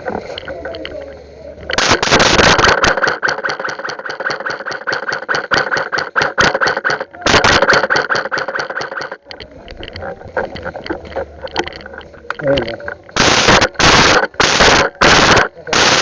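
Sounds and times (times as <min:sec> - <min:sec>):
airsoft rifle firing bursts: 0:01.7 - 0:09.3, 0:13.2 - 0:16.0.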